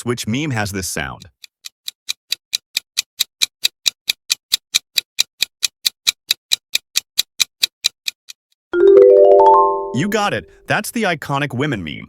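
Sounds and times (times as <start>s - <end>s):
clock-like timer ticking: 0.1s - 8.4s.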